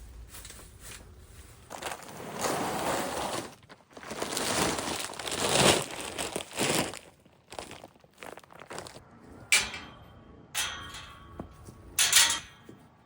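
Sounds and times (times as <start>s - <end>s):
dry straw rustling: 0.0s - 6.9s.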